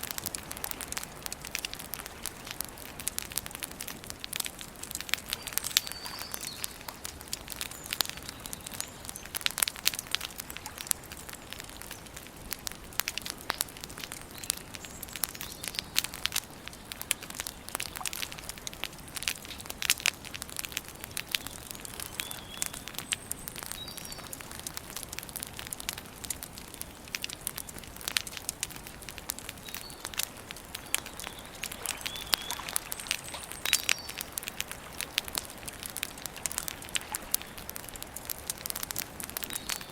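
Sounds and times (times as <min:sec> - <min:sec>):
campfire crackling and popping: 0:00.0 - 0:39.9
bird chirps: 0:30.8 - 0:34.2.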